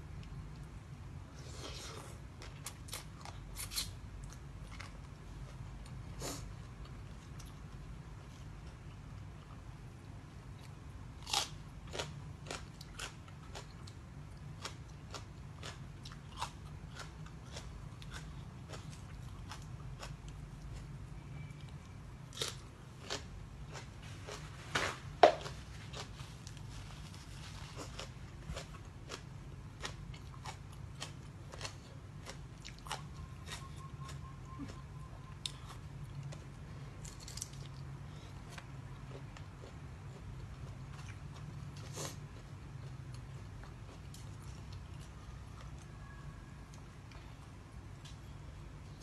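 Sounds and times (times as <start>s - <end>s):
faint low hum: 0.0s - 49.0s
person crunching crisp food: 1.4s - 7.6s, 10.6s - 21.0s, 22.3s - 24.6s, 25.4s - 45.8s.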